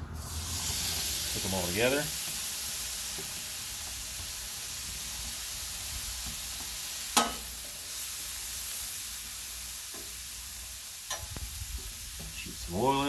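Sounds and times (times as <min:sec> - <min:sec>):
food sizzling on a griddle: 0:00.0 - 0:13.0
metal spatula clacking on griddle: 0:07.2 - 0:07.5, 0:11.1 - 0:11.4.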